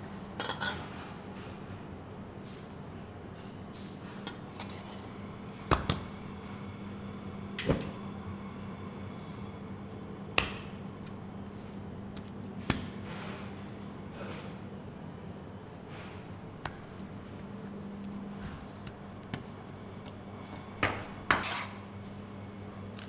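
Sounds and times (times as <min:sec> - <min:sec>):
kitchen knocks and clatters: 0:00.4 - 0:01.6
steady low hum: 0:04.4 - 0:23.0.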